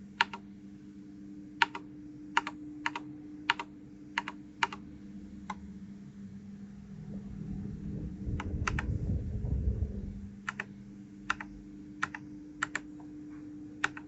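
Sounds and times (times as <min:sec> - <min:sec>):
faint steady hum: 0:00.0 - 0:14.0
keyboard keystrokes: 0:00.2 - 0:00.4, 0:01.6 - 0:04.8, 0:08.4 - 0:08.9, 0:10.4 - 0:10.7, 0:11.3 - 0:13.0, 0:13.8 - 0:14.0.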